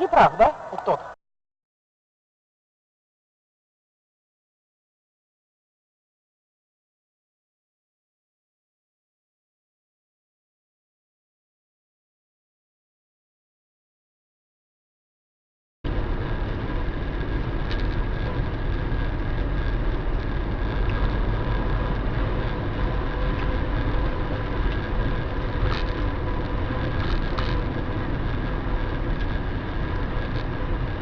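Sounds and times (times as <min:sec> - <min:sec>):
car road and engine rumble: 0:15.9 - 0:31.0.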